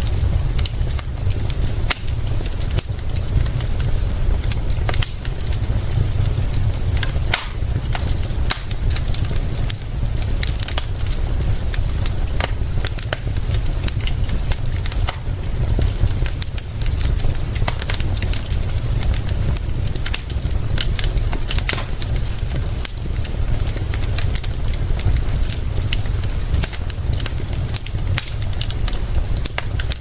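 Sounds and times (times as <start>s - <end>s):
rain hiss: 0.0s - 30.0s
wood fire crackling and popping: 0.0s - 30.0s
low rumble: 11.3s - 29.4s.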